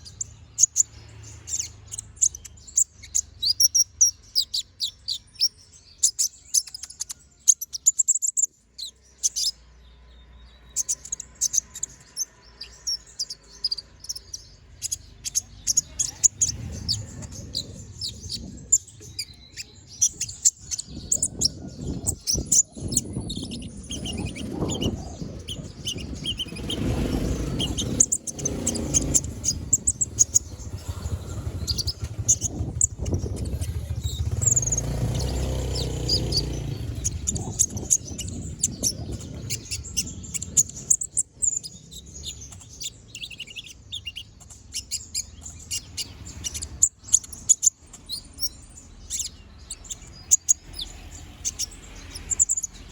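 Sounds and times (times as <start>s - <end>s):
sunbird chirping: 0.0s - 52.9s
low rumbling noise: 14.4s - 20.2s, 20.8s - 40.9s.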